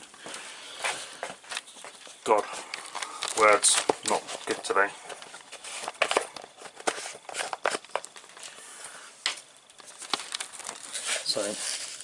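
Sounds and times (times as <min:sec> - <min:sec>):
packaging crinkling: 0:01.5 - 0:08.5, 0:09.7 - 0:12.0.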